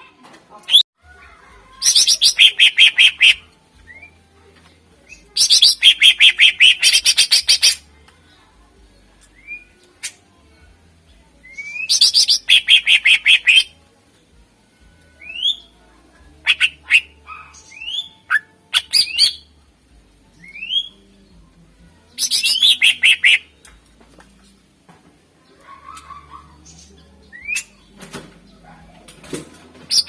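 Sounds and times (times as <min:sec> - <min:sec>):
bird chattering song: 0:01.8 - 0:03.4, 0:05.4 - 0:07.8, 0:11.6 - 0:13.7, 0:22.2 - 0:23.5, 0:25.9 - 0:27.9.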